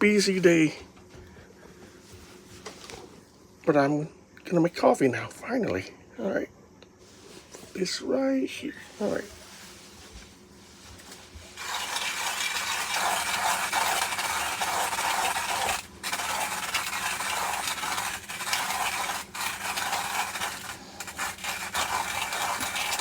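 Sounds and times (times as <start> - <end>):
hand-crank coffee grinder grinding: 11.0 - 23.0.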